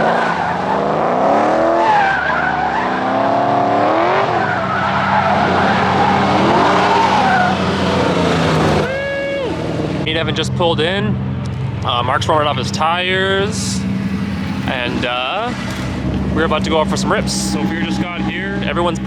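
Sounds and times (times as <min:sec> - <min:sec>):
tyres squealing: 0:00.0 - 0:09.9
car engine revving: 0:00.0 - 0:19.0
steady engine hum: 0:00.0 - 0:19.0.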